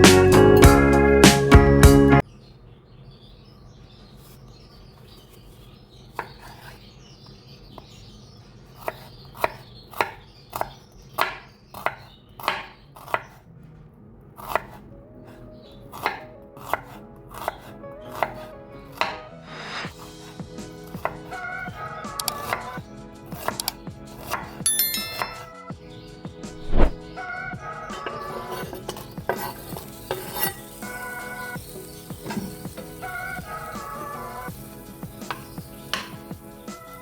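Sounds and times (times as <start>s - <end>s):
knife chopping on cutting board: 8.8s - 13.4s, 14.4s - 14.8s, 15.9s - 19.2s, 23.4s - 24.6s, 26.6s - 27.0s, 35.2s - 36.4s.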